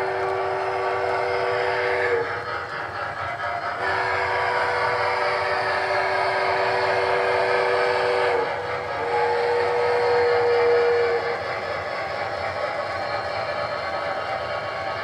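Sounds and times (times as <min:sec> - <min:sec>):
steam whistle blast: 0:00.0 - 0:02.6, 0:03.7 - 0:15.0
model locomotive chuffing: 0:00.0 - 0:15.0.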